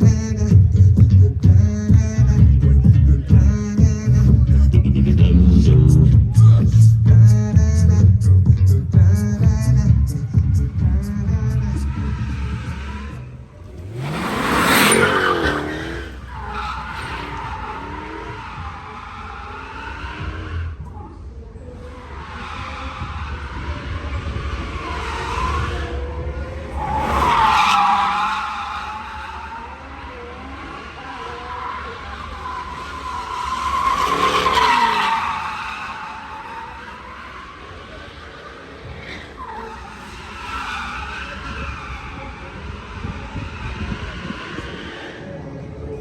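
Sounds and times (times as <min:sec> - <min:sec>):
car engine passing: 0:09.2 - 0:46.0
car engine revving past: 0:10.7 - 0:18.4
tyres squealing: 0:11.5 - 0:20.9, 0:24.6 - 0:45.3.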